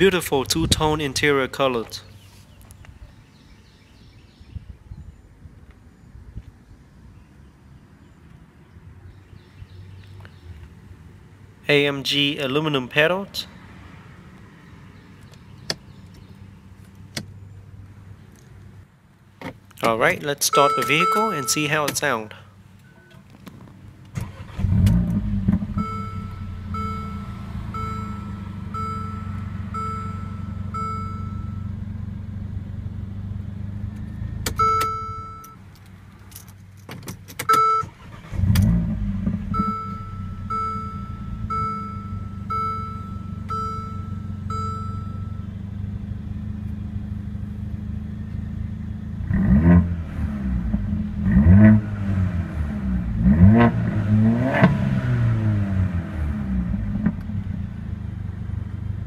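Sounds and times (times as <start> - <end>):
car engine starting and idling: 15.2 - 59.0
cabin warning chime: 20.4 - 22.2, 25.8 - 31.8, 34.6 - 35.6, 39.6 - 45.5
engine revving: 24.2 - 34.6, 37.9 - 44.7, 47.9 - 57.8.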